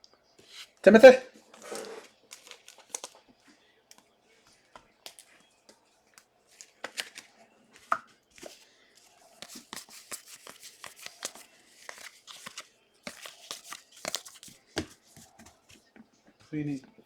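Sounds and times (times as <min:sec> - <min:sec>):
plastic packaging crinkling: 0:01.4 - 0:03.4, 0:09.4 - 0:14.6
cards clicking and tapping: 0:04.7 - 0:08.6, 0:09.4 - 0:15.8.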